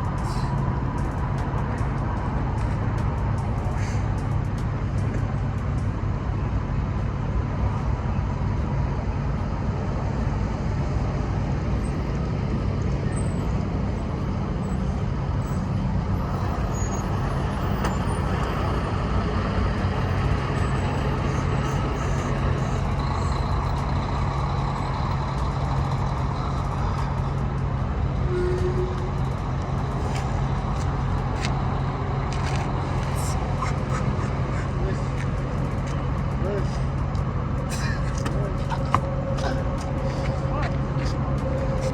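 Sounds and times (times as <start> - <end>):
truck engine hum: 0.0 - 41.9.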